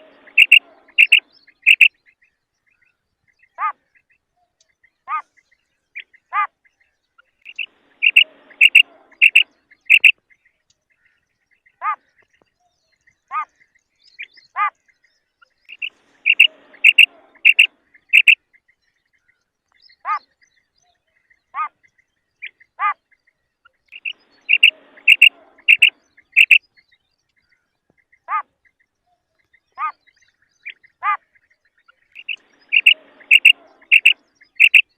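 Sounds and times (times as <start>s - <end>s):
quail calling: 0.0s - 1.9s, 7.5s - 10.1s, 15.7s - 18.4s, 24.0s - 26.6s, 32.1s - 34.9s.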